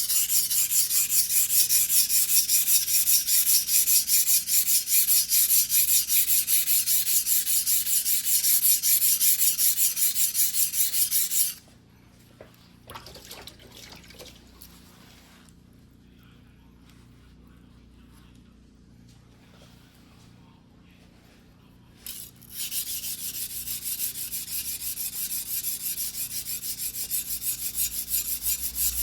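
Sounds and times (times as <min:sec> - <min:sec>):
knife scraping on whetstone: 0:00.0 - 0:11.6, 0:22.0 - 0:29.0.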